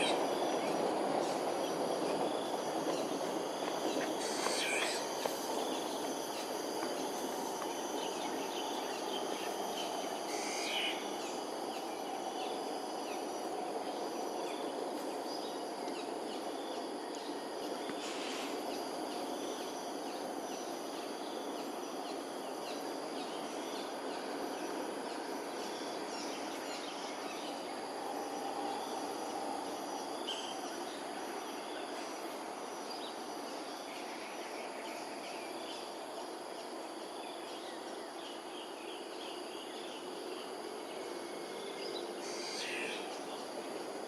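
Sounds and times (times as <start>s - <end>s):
high insect trilling: 3.9s - 11.4s.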